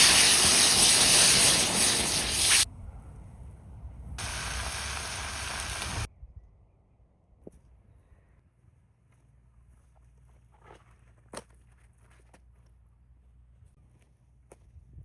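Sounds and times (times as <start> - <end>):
loud steady hissing: 0.0 - 2.7, 4.2 - 6.1.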